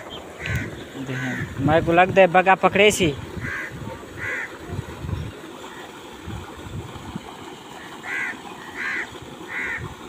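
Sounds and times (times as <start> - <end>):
bird calling: 0.0 - 1.5, 3.4 - 4.5, 7.8 - 9.8
water pouring from a pipe: 0.2 - 10.0.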